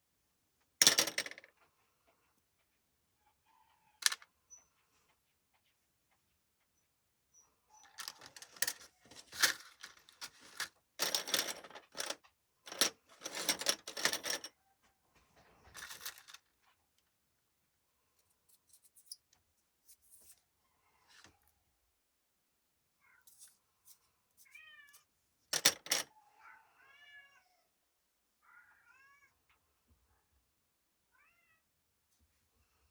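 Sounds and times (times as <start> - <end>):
hands handling small objects: 4.0 - 4.2, 8.0 - 14.5, 15.6 - 16.5, 23.3 - 26.1.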